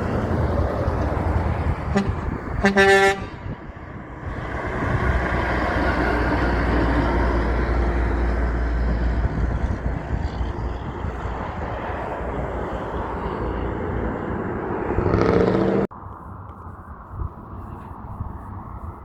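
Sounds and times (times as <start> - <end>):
truck engine rumbling: 0.0 - 19.0
truck horn blast: 1.8 - 3.7.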